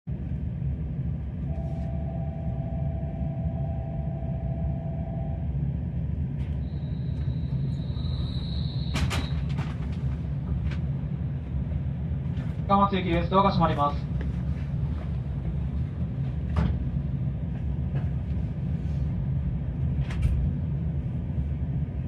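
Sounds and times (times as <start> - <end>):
train low rumble: 0.0 - 22.0
mid-pitched tone: 1.5 - 5.5.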